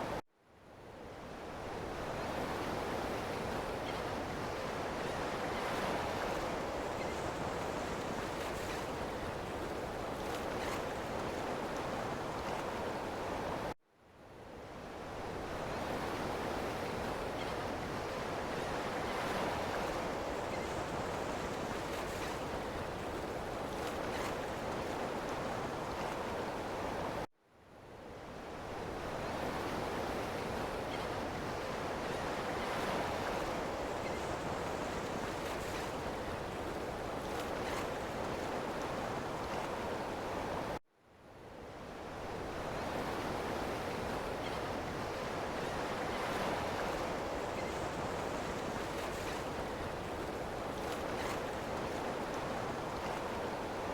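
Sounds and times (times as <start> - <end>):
ocean waves surf: 42.0 - 53.9.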